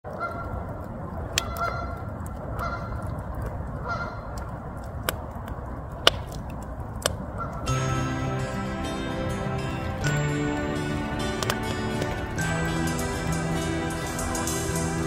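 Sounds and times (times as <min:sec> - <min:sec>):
bird honking: 0:02.6 - 0:03.0, 0:03.8 - 0:04.3
sharp cracks: 0:04.3 - 0:15.0
low rumble: 0:07.7 - 0:15.0.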